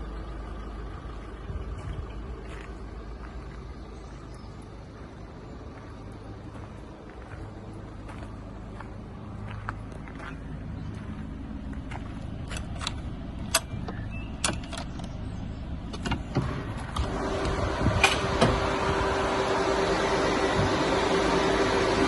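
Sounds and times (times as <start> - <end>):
hum with rushing air: 0.0 - 22.0
low steady rumble: 0.0 - 22.0
sharp clicks: 12.5 - 15.2.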